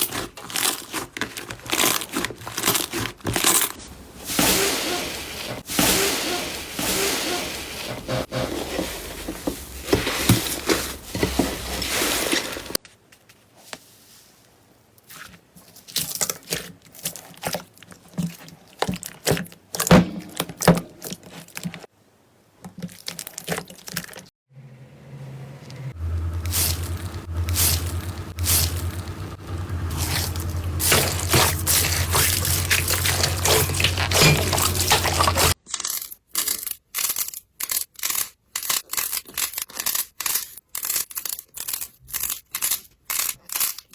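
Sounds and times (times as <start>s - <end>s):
low steady hum: 24.7s - 35.6s.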